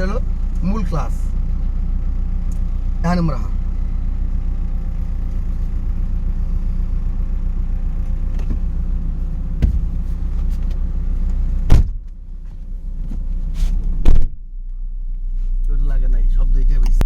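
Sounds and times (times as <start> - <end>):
car engine idling: 0.0 - 17.0
loud knock: 9.6 - 10.0, 11.7 - 12.0.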